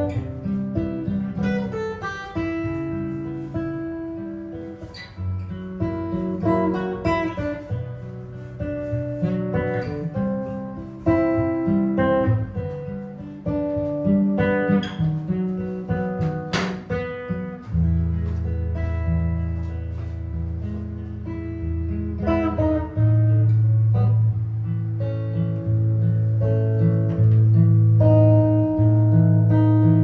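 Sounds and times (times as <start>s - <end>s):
jazz guitar improvising: 0.0s - 30.0s
sharp percussive click: 16.5s - 17.0s.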